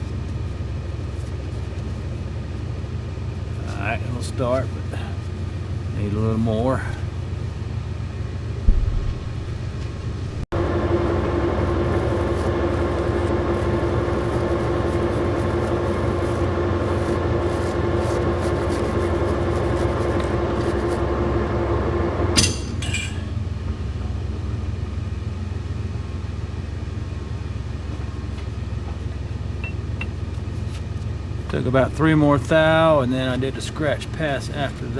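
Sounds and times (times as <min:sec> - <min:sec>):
lathe humming: 0:02.1 - 0:23.9
lathe cutting whine: 0:10.6 - 0:22.4
sharp metallic clink: 0:22.4 - 0:23.3.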